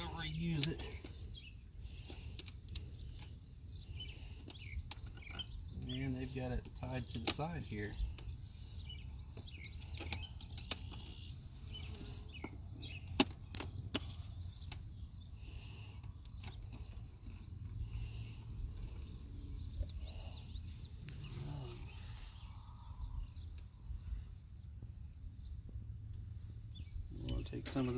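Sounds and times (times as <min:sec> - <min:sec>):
steady low rumble: 0:16.8 - 0:27.6.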